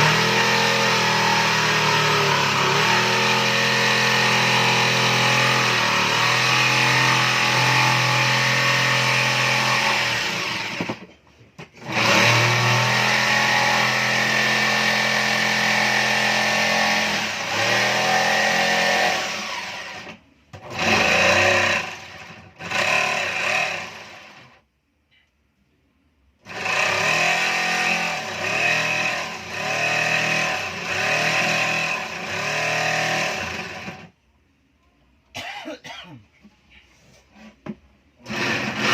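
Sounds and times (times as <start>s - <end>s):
power tool motor under load: 0.0s - 11.1s, 11.8s - 24.5s, 38.2s - 38.9s.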